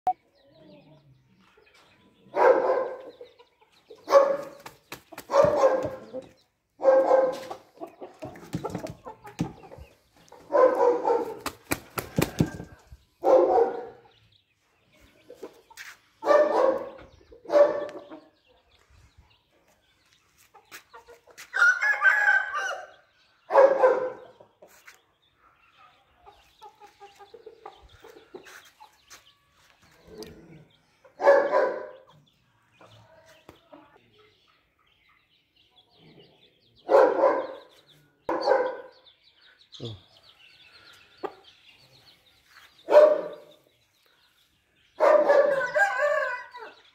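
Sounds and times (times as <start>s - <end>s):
chickens calling: 0.1s - 46.9s.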